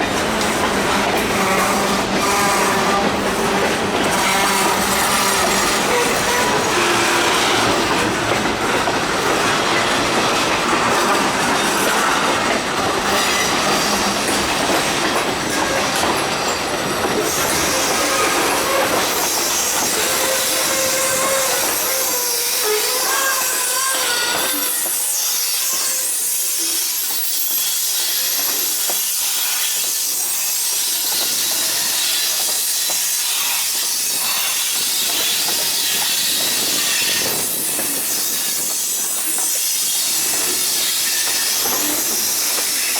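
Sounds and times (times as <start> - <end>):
freight train rumbling past: 0.0 - 29.6
high hiss of train: 0.0 - 42.9
train wheels squealing: 15.5 - 42.9.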